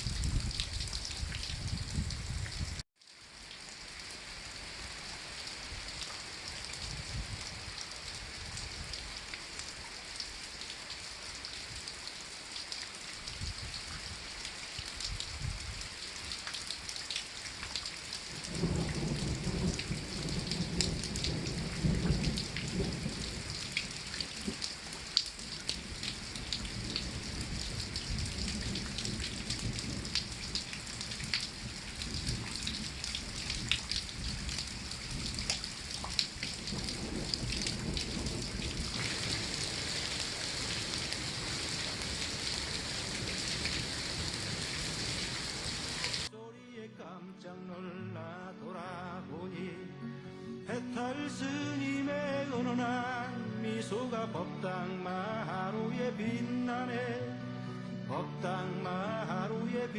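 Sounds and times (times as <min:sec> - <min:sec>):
rain pattering and dripping: 0:00.0 - 0:46.3.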